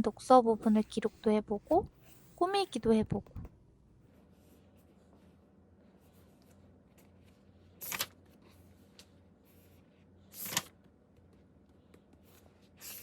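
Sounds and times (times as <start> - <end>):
paper pages turning: 6.3 - 9.6, 10.3 - 10.9.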